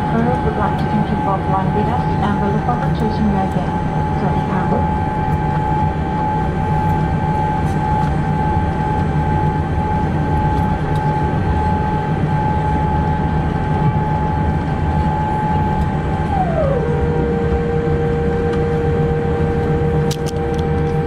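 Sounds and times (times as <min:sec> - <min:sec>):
aircraft cabin rumble: 0:00.0 - 0:21.0
steady high whine: 0:00.0 - 0:21.0.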